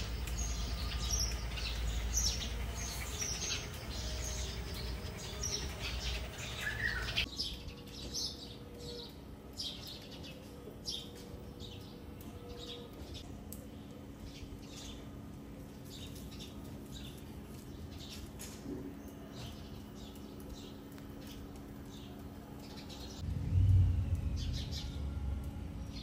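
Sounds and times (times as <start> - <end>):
small birds chirping: 0.0 - 25.1
low rumble: 23.1 - 26.0.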